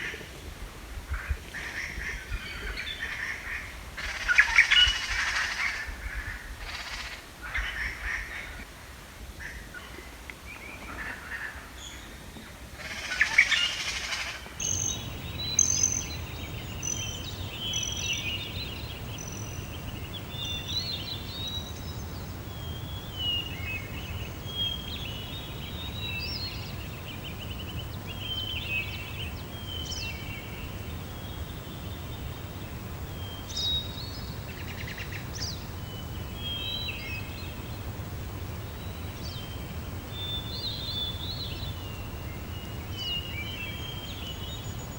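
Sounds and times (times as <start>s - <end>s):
songbirds chirping: 13.2s - 44.9s
steady low rumble: 14.8s - 24.4s.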